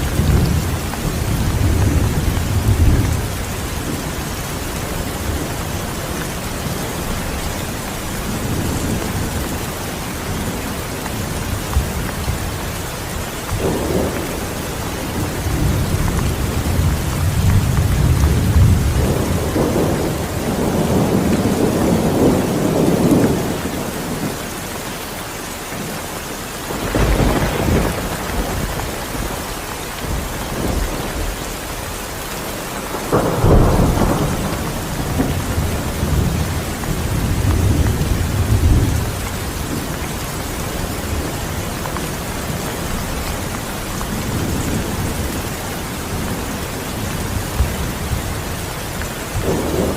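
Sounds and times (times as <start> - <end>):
sharp thunderclaps: 0.0 - 7.6, 13.5 - 24.4, 26.7 - 31.7, 32.7 - 41.7, 49.3 - 49.9
steady rain: 0.0 - 49.9
deep rolls of thunder: 13.6 - 24.4, 26.7 - 31.7, 32.8 - 41.6, 49.4 - 49.9.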